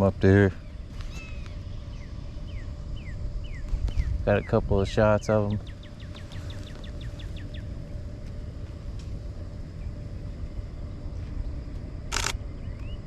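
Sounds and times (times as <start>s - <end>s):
low rumble: 0.0s - 13.0s
bird chirps: 0.5s - 8.0s
camera shutter clack: 12.1s - 12.4s.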